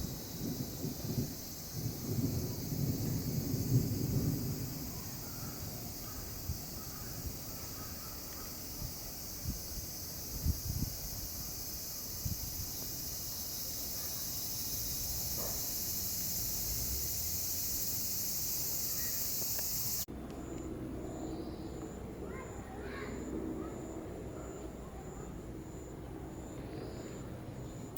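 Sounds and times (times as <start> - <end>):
high-pitched insect chorus: 0.0 - 27.9.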